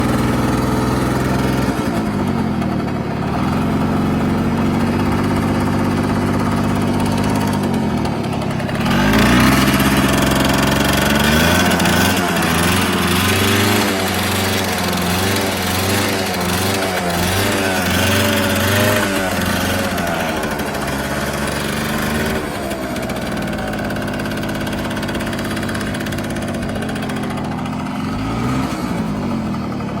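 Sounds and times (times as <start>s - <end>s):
two-stroke engine idling and revving: 0.0s - 30.0s.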